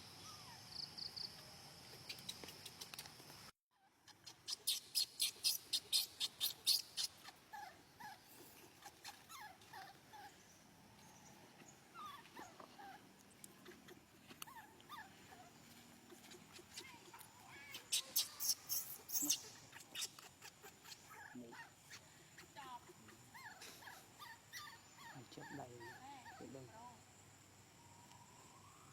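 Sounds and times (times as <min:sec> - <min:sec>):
baby monkey squeaking: 0:04.0 - 0:08.2, 0:08.8 - 0:10.3, 0:16.1 - 0:26.5.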